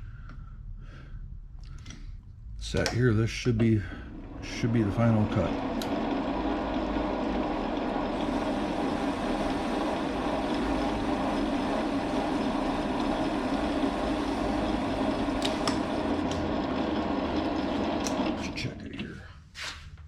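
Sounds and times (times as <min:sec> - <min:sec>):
metal lathe running: 0:02.8 - 0:18.6.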